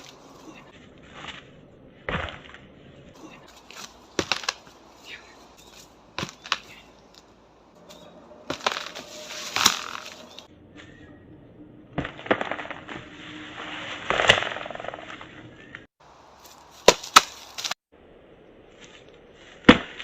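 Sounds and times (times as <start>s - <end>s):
dry wood cracking and knocking: 3.7s - 4.7s.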